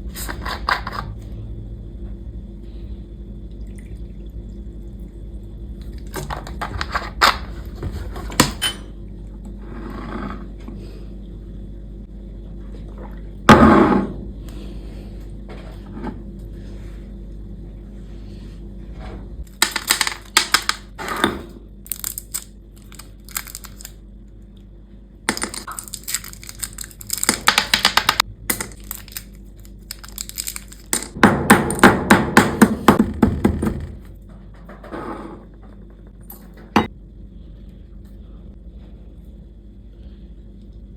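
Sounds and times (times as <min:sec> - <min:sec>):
low steady hum: 0:00.0 - 0:40.9
small hard objects rattling: 0:19.5 - 0:20.9, 0:21.9 - 0:24.0, 0:25.3 - 0:31.2.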